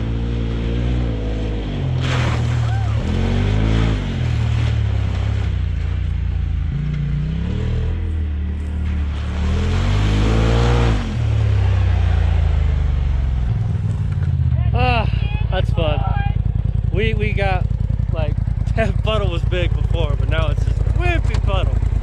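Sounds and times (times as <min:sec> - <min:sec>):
engine revving hard: 0:00.0 - 0:05.5, 0:08.8 - 0:12.8.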